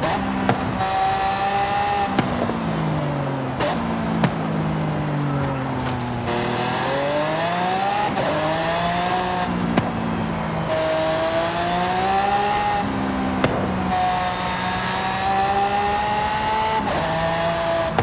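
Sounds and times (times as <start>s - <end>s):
car engine accelerating: 0.0s - 18.0s
sharp exhaust cracks: 0.0s - 18.0s.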